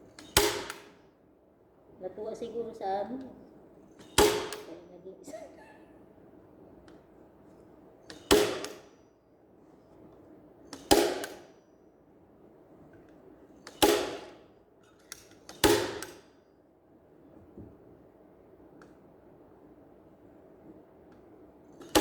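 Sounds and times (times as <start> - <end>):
staple gun firing: 0.2 - 1.0, 4.0 - 4.7, 8.1 - 8.9, 10.7 - 11.5, 13.6 - 14.4, 15.0 - 16.3, 21.8 - 22.0.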